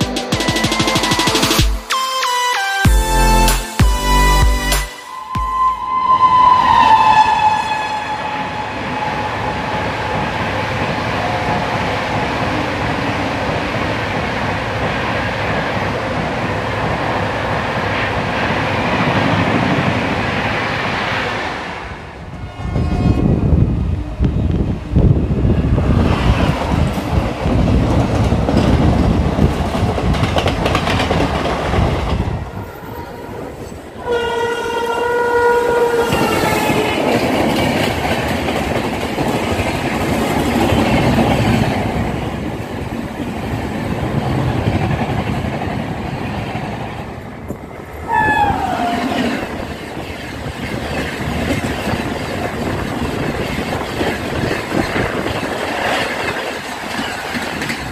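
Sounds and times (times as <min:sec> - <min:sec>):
electric locomotive horn: 0:01.9 - 0:10.2, 0:22.3 - 0:23.6, 0:32.8 - 0:36.9, 0:48.1 - 0:49.2
trains rumbling and clattering past: 0:03.0 - 0:57.9.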